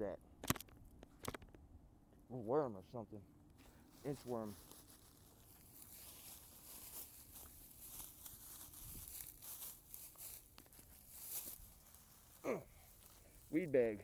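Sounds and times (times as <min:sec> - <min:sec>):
rustling and crackling: 0:00.4 - 0:01.6, 0:03.5 - 0:14.0
small clicks: 0:00.4 - 0:01.6.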